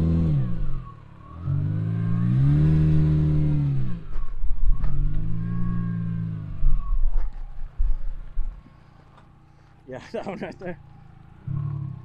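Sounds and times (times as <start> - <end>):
car engine revving: 0.0 - 7.4, 11.3 - 12.0.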